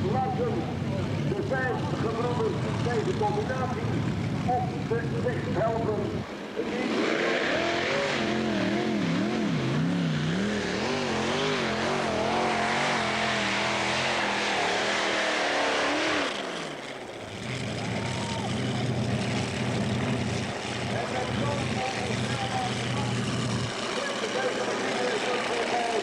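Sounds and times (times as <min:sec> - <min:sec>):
tractor engines running hard: 0:00.0 - 0:26.0.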